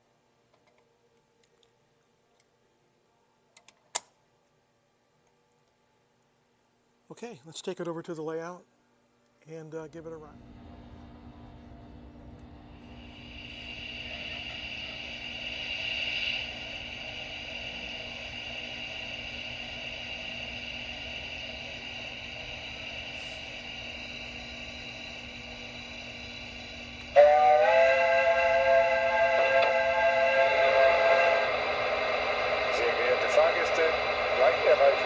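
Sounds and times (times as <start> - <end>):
steam hissing: 12.8 - 35.0
chime-like steam whistle: 13.0 - 35.0.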